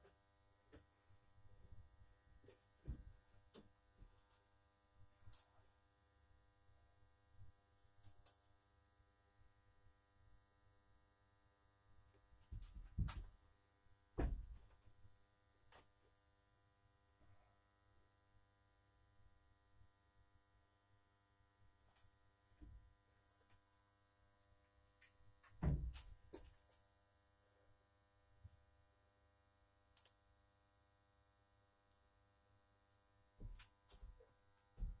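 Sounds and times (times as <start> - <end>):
faint steady hum: 0.0 - 35.0
knocks and thumps: 12.5 - 13.3, 14.2 - 14.7, 25.5 - 26.2.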